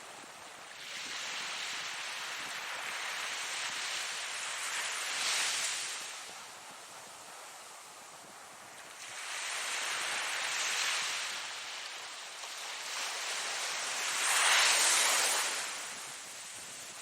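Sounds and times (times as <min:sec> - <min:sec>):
ocean waves breaking: 0:09.0 - 0:17.0.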